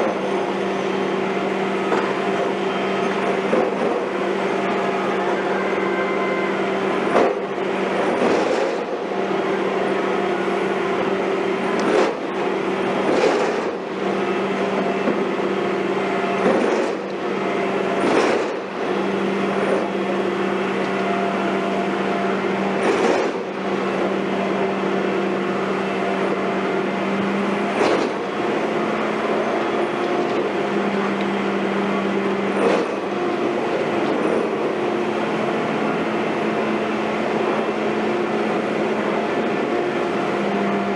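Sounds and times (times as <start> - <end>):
heavy machinery droning hum: 0.0 - 40.9
sharp knocks: 22.8 - 23.5.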